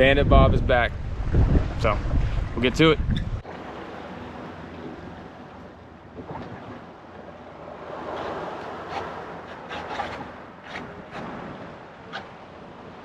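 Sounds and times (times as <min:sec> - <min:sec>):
wind buffeting microphone: 0:00.0 - 0:03.5
water splashing on boat: 0:01.0 - 0:13.0.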